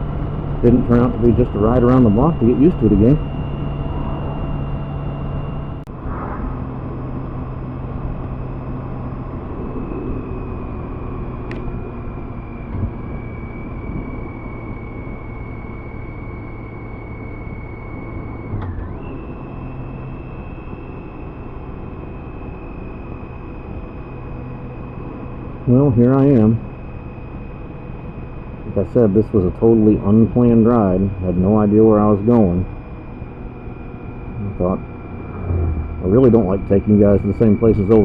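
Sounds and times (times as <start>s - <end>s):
wind noise: 0.0s - 16.5s, 34.4s - 38.0s
motorcycle engine running: 0.0s - 38.0s
road noise: 0.0s - 38.0s.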